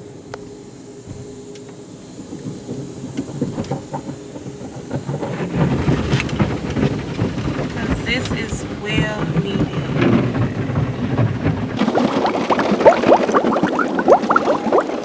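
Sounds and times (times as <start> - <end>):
water spray drumming on car: 11.8 - 15.0.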